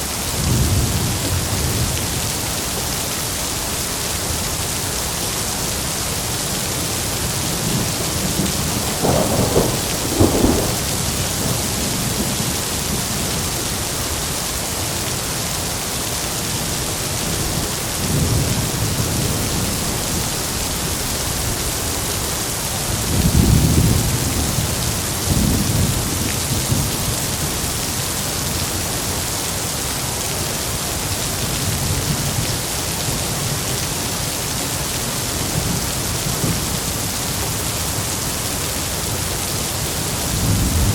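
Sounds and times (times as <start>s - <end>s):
heavy rain: 0.0s - 40.9s
thunder rumbling: 7.2s - 13.4s.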